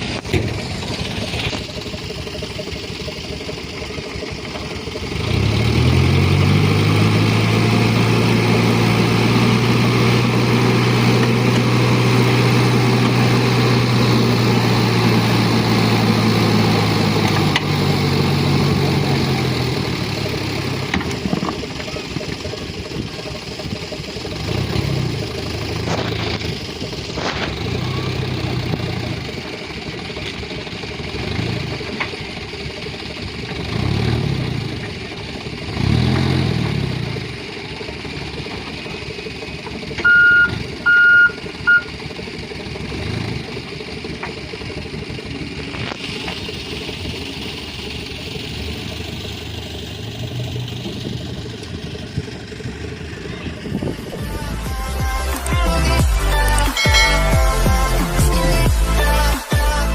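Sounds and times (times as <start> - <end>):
truck engine revving: 0.0 - 59.9
short high beeps: 40.0 - 41.9.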